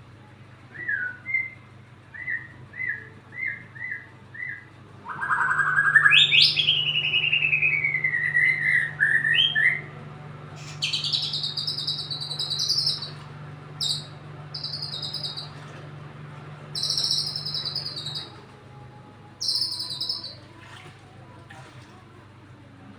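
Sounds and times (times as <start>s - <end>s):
bird singing: 0.8s - 9.9s, 10.6s - 15.6s, 16.7s - 18.5s, 19.4s - 20.5s
buzzy rattling bird phrases: 2.2s - 15.6s, 16.7s - 18.5s, 19.4s - 20.6s.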